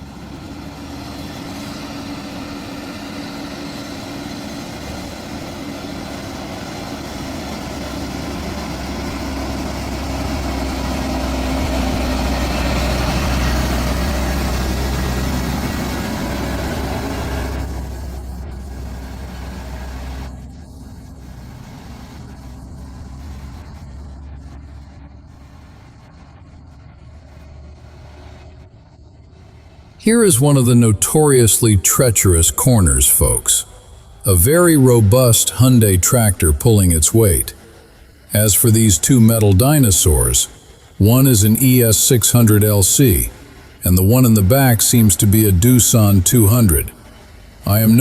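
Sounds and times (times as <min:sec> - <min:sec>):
diesel truck engine under load: 0:00.0 - 0:24.8.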